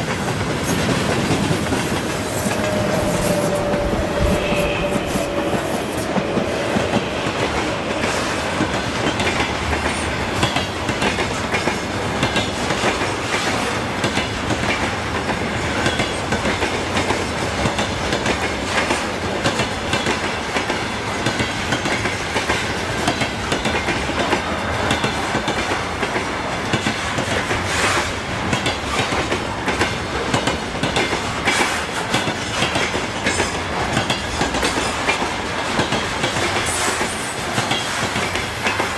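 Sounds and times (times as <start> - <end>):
train wheels clacking on rails: 0.0 - 38.9.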